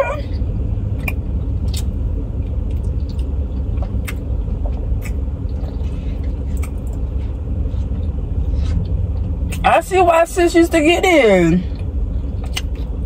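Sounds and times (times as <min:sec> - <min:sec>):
car engine idling: 0:00.0 - 0:13.0
eating clicks and smacks: 0:00.9 - 0:07.0, 0:11.8 - 0:13.0.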